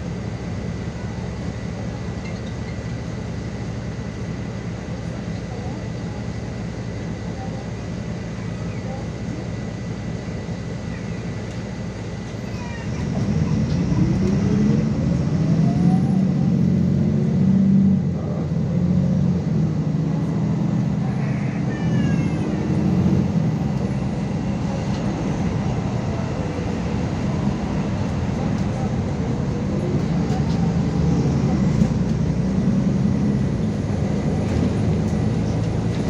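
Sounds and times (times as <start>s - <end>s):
bus diesel engine running: 0.0s - 36.0s
rising engine whine: 11.4s - 36.0s.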